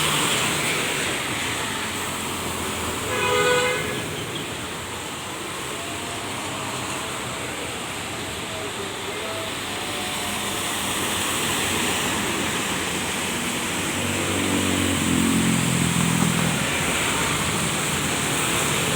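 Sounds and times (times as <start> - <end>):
rain and tyre spray hiss: 0.0 - 18.9
heavy vehicle passing: 9.4 - 18.9.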